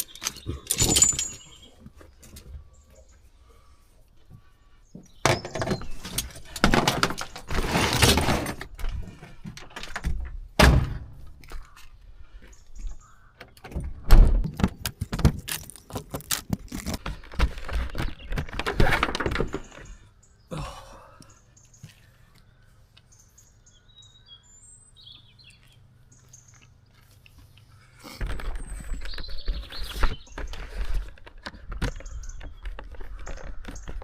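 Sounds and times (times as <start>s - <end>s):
metal hardware jangling: 0.0s - 1.7s
equipment knocks and clinks: 0.0s - 1.8s.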